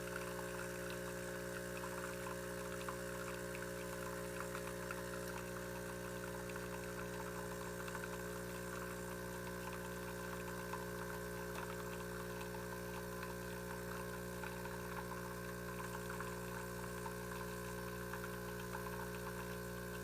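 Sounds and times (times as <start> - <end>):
espresso machine pump humming: 0.0 - 20.0.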